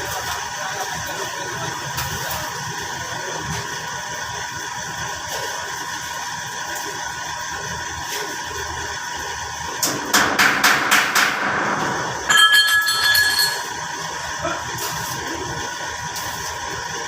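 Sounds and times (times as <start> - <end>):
metal clanks: 12.0 - 13.8
ringing metal strike: 12.3 - 13.8.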